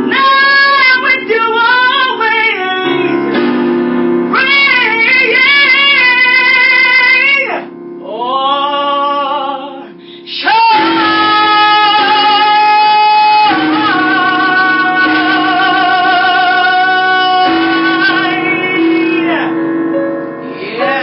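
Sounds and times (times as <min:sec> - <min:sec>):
woman singing jazz ballad: 0:00.0 - 0:03.4, 0:04.3 - 0:19.7, 0:20.4 - 0:21.0
instrumental accompaniment: 0:00.0 - 0:21.0.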